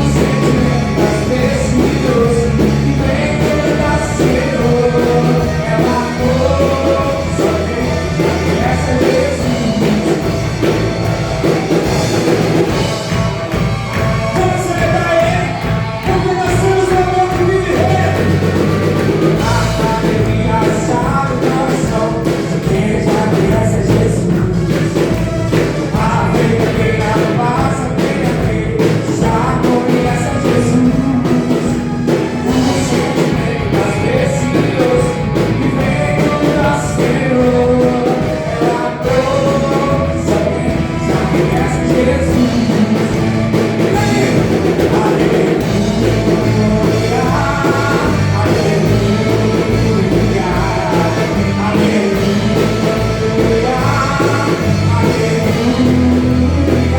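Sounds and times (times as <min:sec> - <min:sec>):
band playing rock worship song: 0:00.0 - 0:56.9
person singing: 0:00.0 - 0:56.9.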